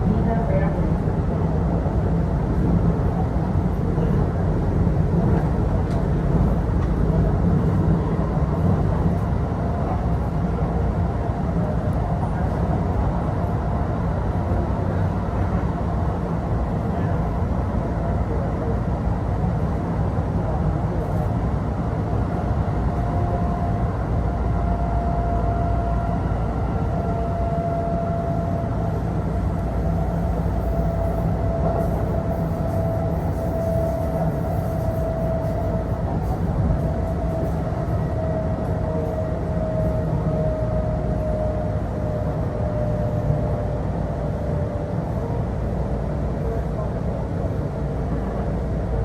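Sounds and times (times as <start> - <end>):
train wheels rumbling on rail: 0.0 - 49.0
train whine: 21.6 - 49.0.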